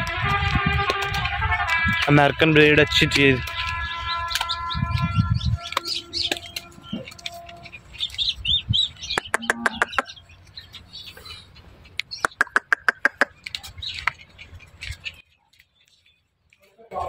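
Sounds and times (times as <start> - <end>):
small birds chirping: 3.1 - 17.0
quick sharp clicking notes: 9.0 - 10.1, 12.0 - 14.2.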